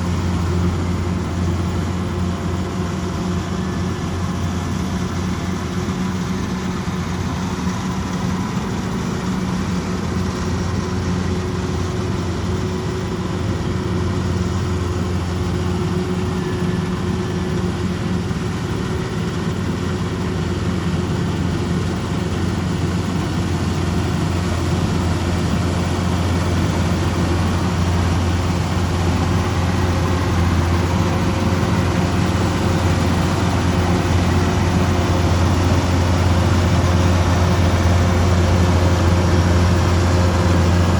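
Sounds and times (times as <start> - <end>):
combine harvester diesel engine drone: 0.0 - 40.9.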